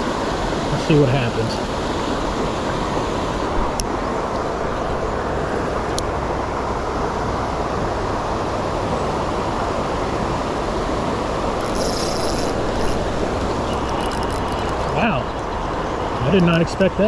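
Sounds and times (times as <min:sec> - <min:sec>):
creek rapids rushing: 0:00.0 - 0:17.0
sharp clicks: 0:11.6 - 0:14.9.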